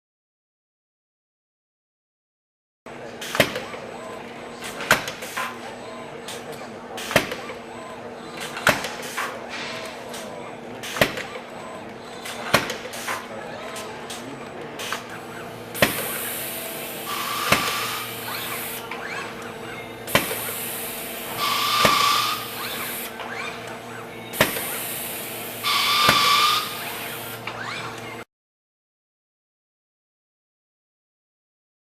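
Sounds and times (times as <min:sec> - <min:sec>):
steady machine hum: 0:02.9 - 0:28.2
hissing with high whistle: 0:21.4 - 0:22.5, 0:25.7 - 0:26.8.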